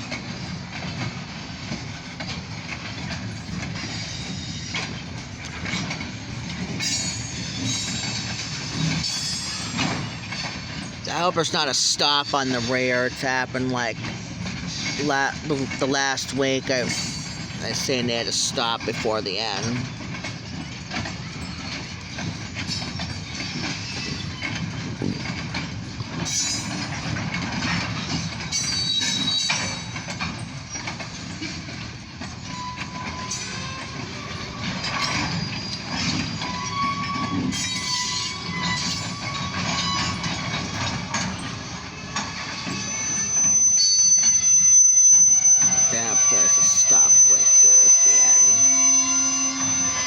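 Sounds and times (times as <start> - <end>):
wheel clatter over rail joints: 0.0 - 43.5
freight train rumble: 0.0 - 50.0
high wheel squeals: 3.4 - 5.0, 6.6 - 11.2, 27.7 - 31.6, 32.2 - 50.0.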